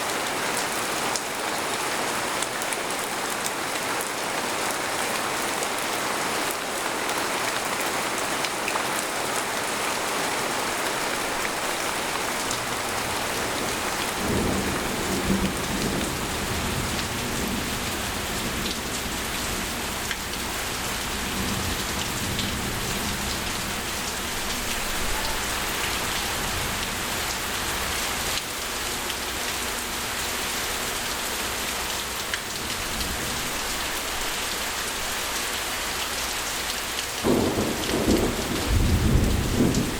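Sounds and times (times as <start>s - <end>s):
rain pattering on a tent: 0.0s - 39.9s
low rolling thunder: 12.6s - 18.6s, 37.2s - 39.9s.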